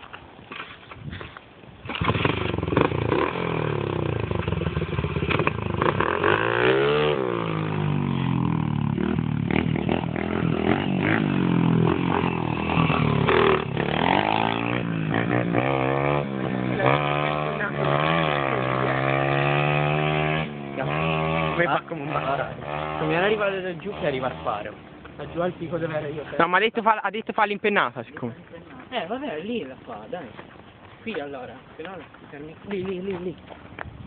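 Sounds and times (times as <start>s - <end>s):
motorbike engine revving: 1.8s - 26.3s.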